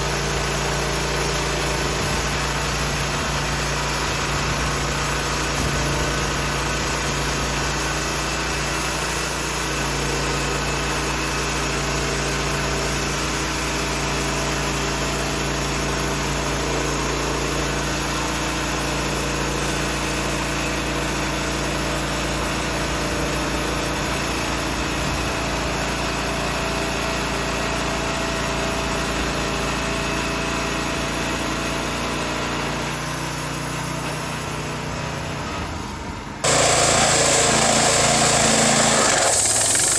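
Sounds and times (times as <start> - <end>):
engine running steadily: 36.4 - 39.9.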